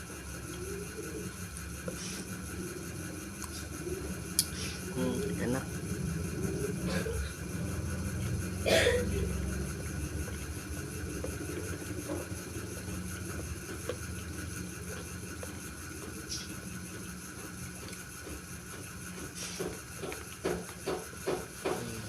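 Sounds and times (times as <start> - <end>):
steady low hum: 0.0 - 22.0
person eating: 1.8 - 7.4, 8.1 - 18.4.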